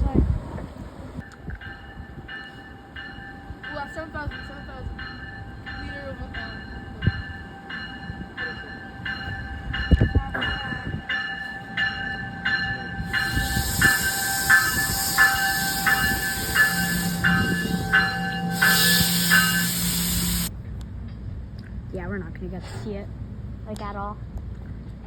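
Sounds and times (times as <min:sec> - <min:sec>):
bell ringing: 0:01.7 - 0:20.5
loud train hiss: 0:12.9 - 0:20.5.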